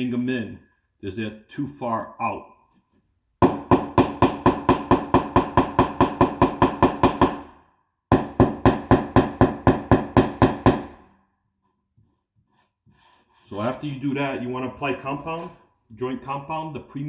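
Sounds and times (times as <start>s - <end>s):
hammer blows on nails: 3.4s - 11.1s.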